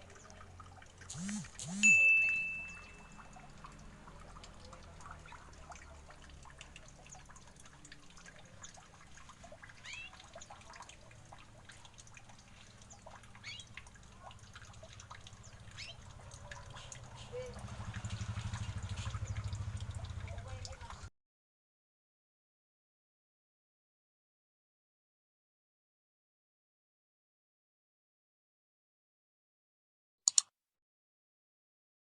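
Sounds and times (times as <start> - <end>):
small birds chirping: 9.8 - 10.3, 12.6 - 13.8, 15.3 - 17.6, 18.6 - 19.6.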